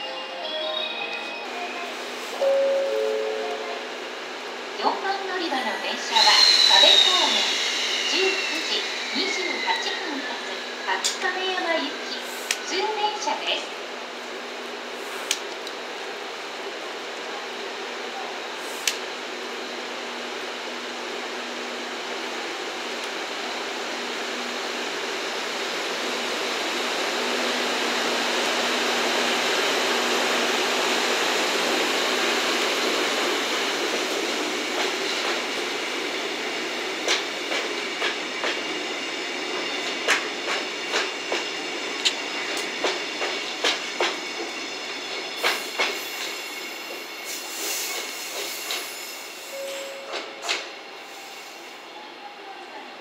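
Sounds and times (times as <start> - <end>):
train rumbling past: 0.0 - 16.2.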